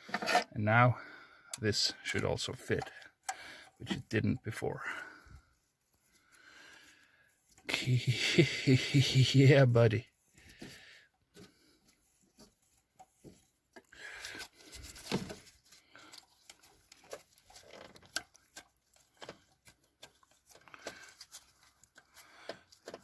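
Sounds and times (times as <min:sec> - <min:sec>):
hands handling engine parts: 0:09.6 - 0:23.0.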